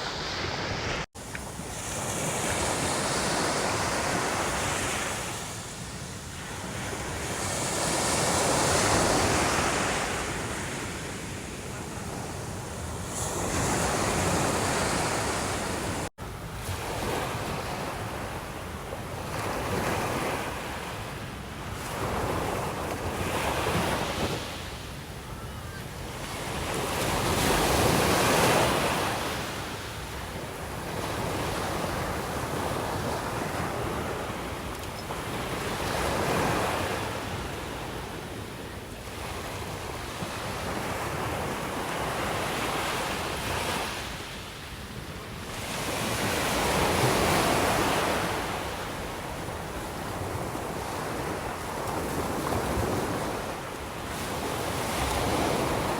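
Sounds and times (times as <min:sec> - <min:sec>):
sea waves breaking on shore: 0:00.0 - 0:25.0, 0:25.8 - 0:55.9.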